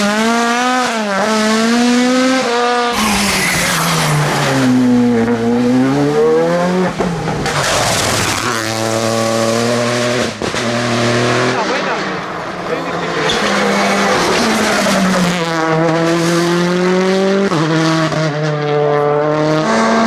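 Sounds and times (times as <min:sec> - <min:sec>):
rally car engine revving: 0:00.0 - 0:20.0
tyre noise: 0:02.9 - 0:17.0.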